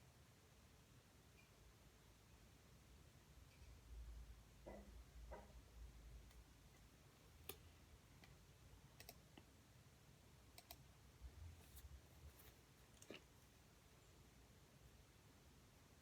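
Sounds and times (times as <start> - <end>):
faint sharp clicks and taps: 4.6 - 8.4.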